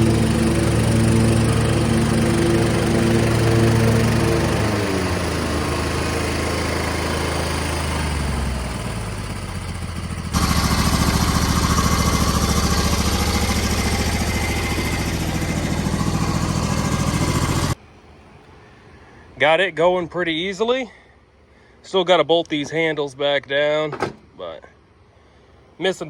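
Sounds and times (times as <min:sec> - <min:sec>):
garden tractor engine running: 0:00.0 - 0:17.8.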